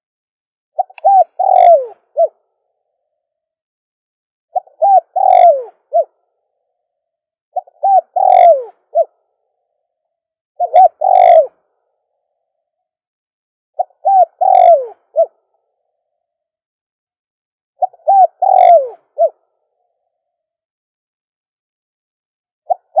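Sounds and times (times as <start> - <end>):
dove cooing: 0.8 - 2.5, 4.6 - 6.2, 7.6 - 9.2, 10.6 - 11.8, 13.8 - 15.5, 17.8 - 19.6, 22.7 - 23.0.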